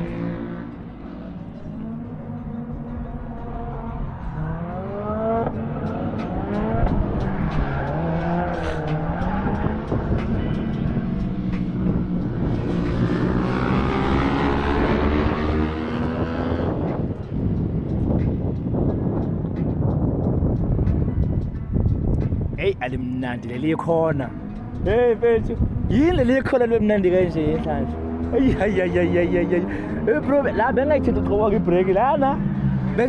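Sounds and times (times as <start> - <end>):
go-kart engine revving: 4.4 - 16.8.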